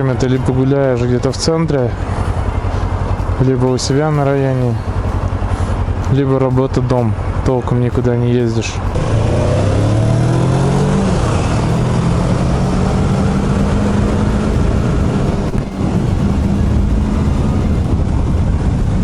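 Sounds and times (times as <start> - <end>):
motorcycle engine accelerating: 8.7 - 19.0
wind rushing over microphone: 8.7 - 19.0.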